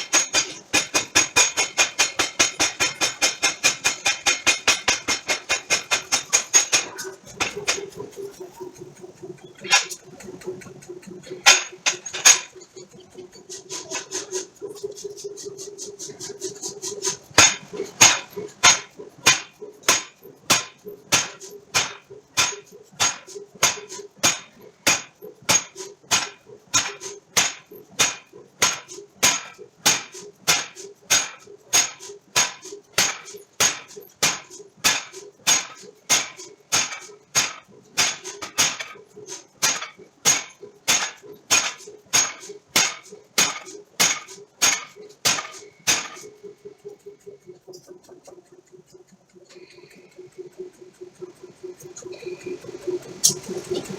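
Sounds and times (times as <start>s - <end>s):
hammer striking steel: 0.0s - 8.1s, 11.4s - 12.9s, 16.0s - 46.4s.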